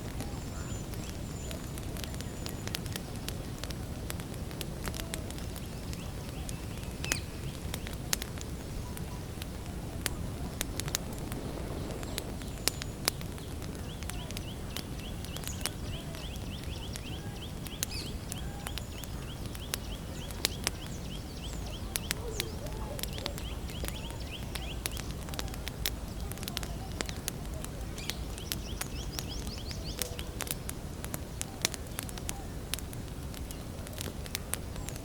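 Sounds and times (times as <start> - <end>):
campfire crackling: 0.0 - 35.0
bird chirping: 11.4 - 25.4, 26.1 - 30.4
other bird calls: 11.4 - 30.5.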